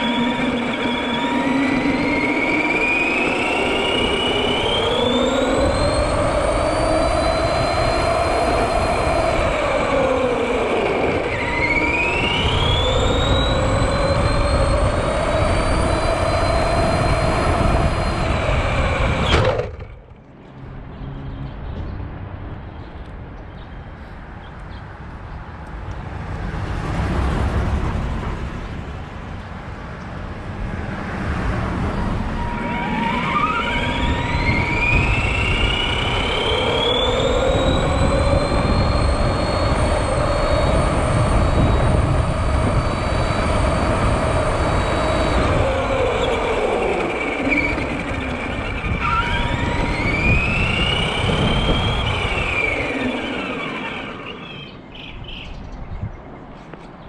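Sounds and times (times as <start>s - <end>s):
electric motor whining: 0.0s - 20.2s, 31.7s - 54.8s.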